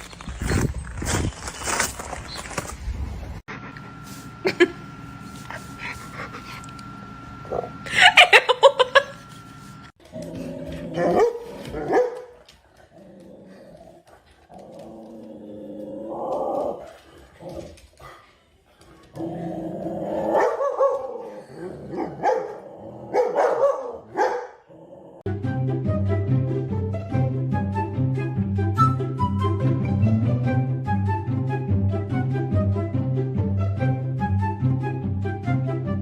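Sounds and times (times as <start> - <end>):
dog barking and growling: 10.1 - 18.2, 19.0 - 25.3.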